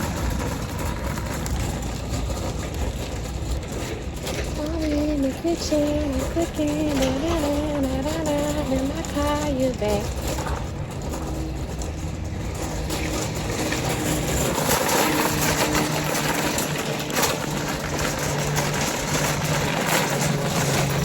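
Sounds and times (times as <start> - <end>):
broad rushing noise: 0.0 - 21.0
car engine hum: 0.0 - 21.0.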